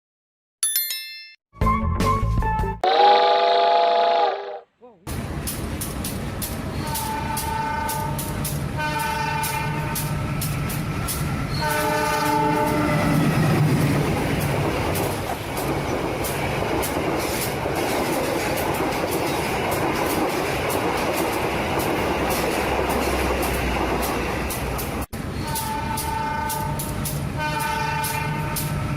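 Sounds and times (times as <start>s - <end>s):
train horn blasts: 2.8s - 4.6s, 6.8s - 10.5s, 11.5s - 13.2s, 25.4s - 28.9s
train rumbling along track: 5.1s - 28.9s
wheels clickety-clack: 5.2s - 28.8s.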